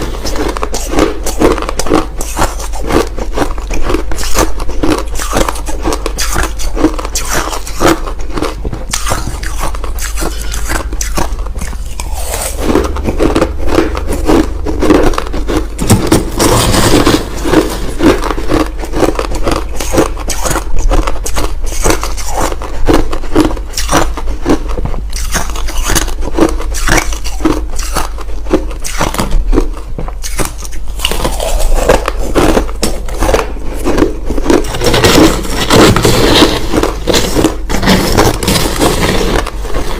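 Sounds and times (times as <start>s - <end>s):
crushed ice being chewed: 0.0s - 39.9s.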